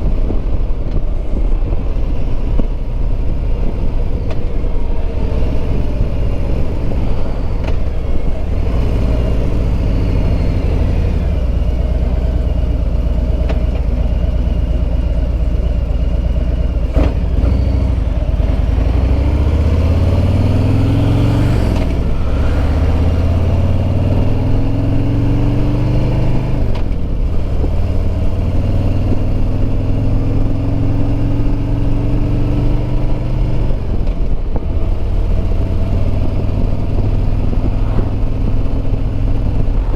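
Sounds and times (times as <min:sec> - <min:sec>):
wind noise: 0:00.0 - 0:12.9, 0:16.7 - 0:39.9
motorcycle engine shifting gears: 0:00.0 - 0:39.9.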